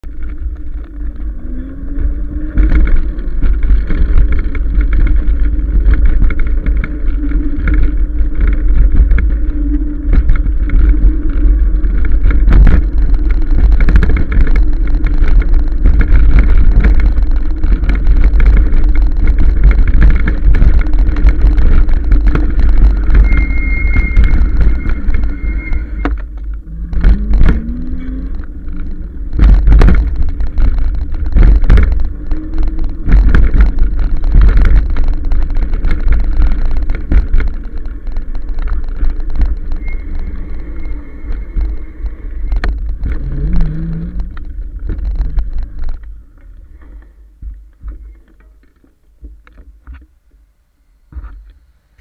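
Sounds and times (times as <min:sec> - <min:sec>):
wind rumble on microphone: 0:00.0 - 0:52.0
knocks and rattles: 0:02.0 - 0:50.4.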